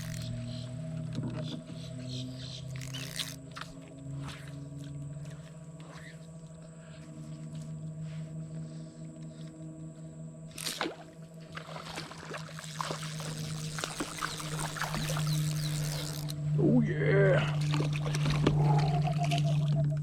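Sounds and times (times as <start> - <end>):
steady low hum: 0.0 - 20.0
water sloshing and trickling: 10.5 - 16.5, 17.4 - 20.0.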